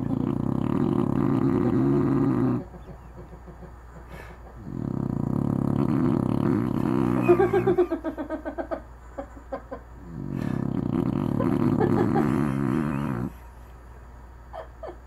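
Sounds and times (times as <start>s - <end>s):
dog snoring: 0.0s - 2.7s, 4.2s - 8.0s, 10.0s - 13.5s.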